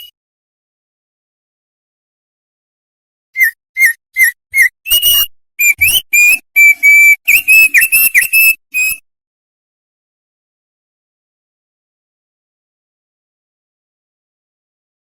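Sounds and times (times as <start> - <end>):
songbird whistling: 3.4 - 9.0.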